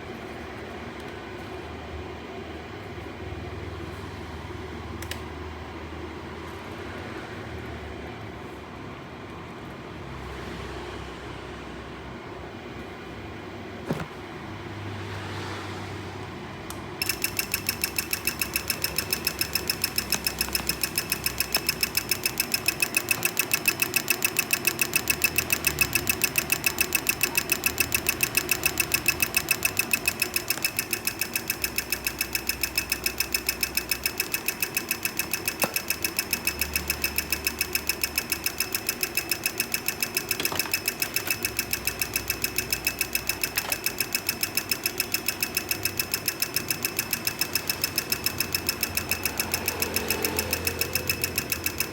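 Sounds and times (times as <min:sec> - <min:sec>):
engine ticking: 0:17.0 - 0:51.9.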